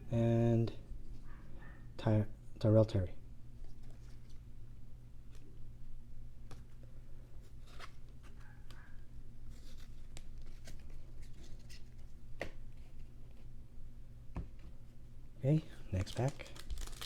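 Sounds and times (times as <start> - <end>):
steady low hum: 0.0 - 17.0
cards and wrappers clicking: 16.0 - 17.0.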